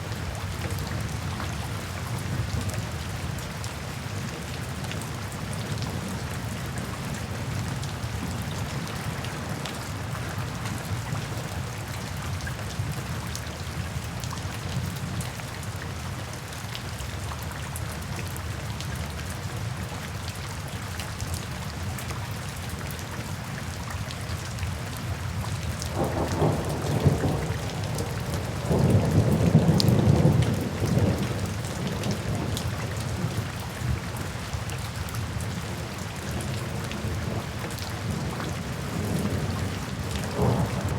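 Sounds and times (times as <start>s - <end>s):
steady rain falling: 0.0s - 40.9s
thunder rumbling: 25.9s - 32.7s, 37.0s - 40.9s.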